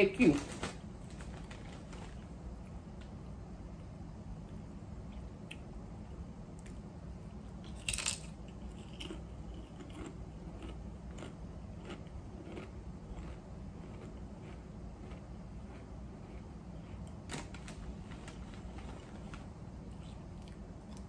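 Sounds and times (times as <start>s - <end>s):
potato chips crunching: 7.6s - 17.2s.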